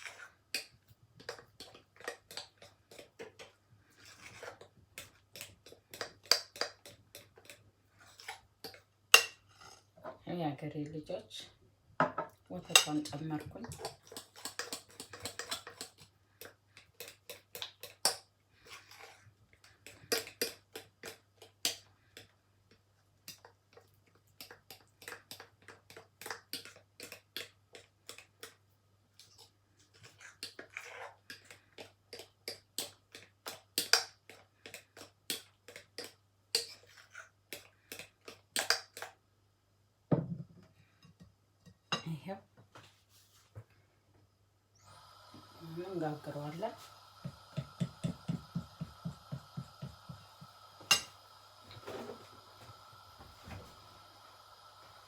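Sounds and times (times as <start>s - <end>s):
utensil tapping against bowl: 47.2s - 51.1s.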